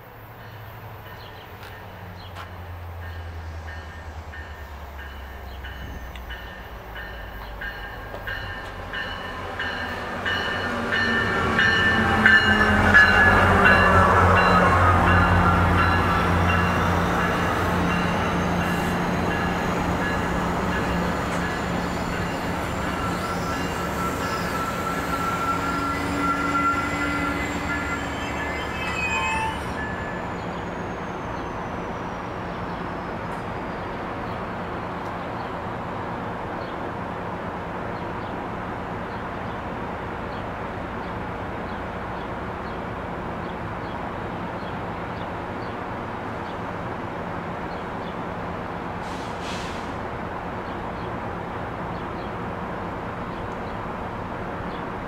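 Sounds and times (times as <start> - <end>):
standing train humming: 0.0 - 55.0
train brakes squealing: 3.1 - 34.0, 49.0 - 50.0.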